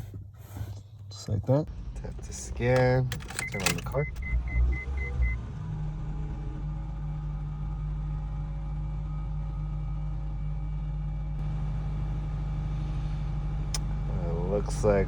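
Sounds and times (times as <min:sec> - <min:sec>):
car humming: 0:00.0 - 0:07.3, 0:11.4 - 0:15.0.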